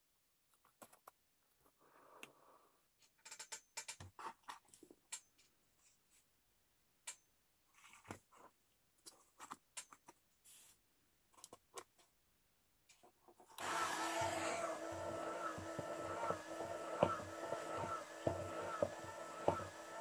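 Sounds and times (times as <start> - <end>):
small electric motor whining: 13.6 - 20.0.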